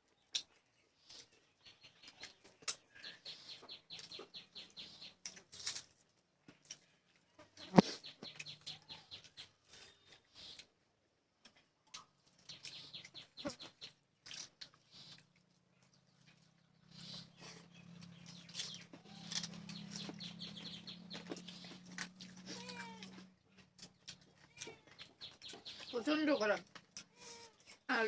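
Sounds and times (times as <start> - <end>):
cat meowing: 22.5 - 23.2, 24.4 - 25.0.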